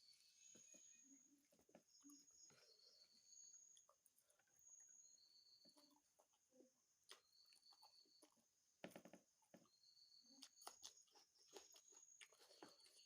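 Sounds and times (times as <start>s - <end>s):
mouth chewing sounds: 10.2s - 13.0s.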